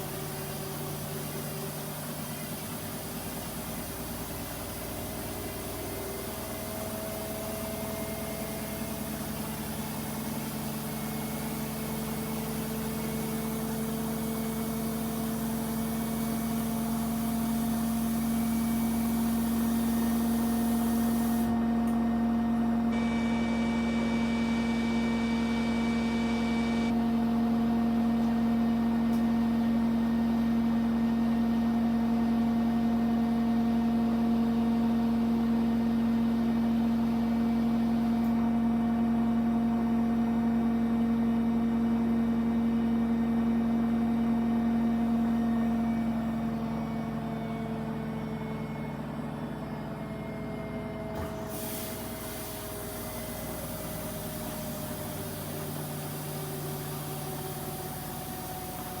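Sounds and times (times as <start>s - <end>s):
washing machine spinning: 50.4s - 59.0s.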